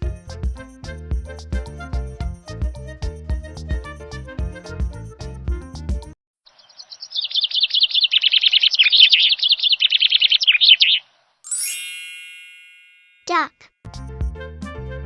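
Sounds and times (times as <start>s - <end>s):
background music: 0.0s - 6.2s, 13.9s - 15.0s
small bird chirping: 6.5s - 11.4s
bright ding: 11.5s - 13.5s.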